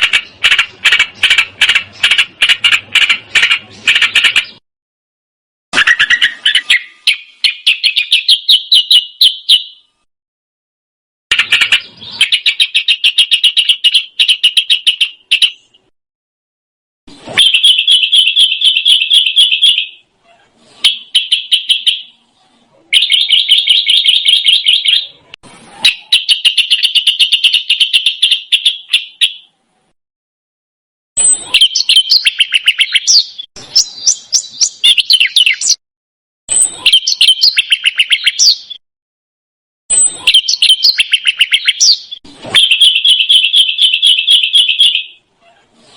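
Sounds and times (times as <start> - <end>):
songbird trilling and twittering: 5.8 - 9.9, 11.3 - 15.9, 31.2 - 35.8, 36.5 - 38.8, 39.9 - 45.2.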